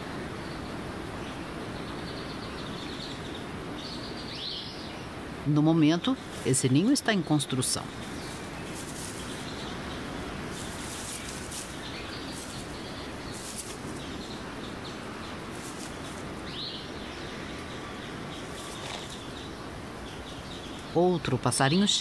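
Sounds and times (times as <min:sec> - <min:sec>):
outdoor background hiss: 0:00.0 - 0:22.0
faint bird chirps: 0:07.5 - 0:22.0.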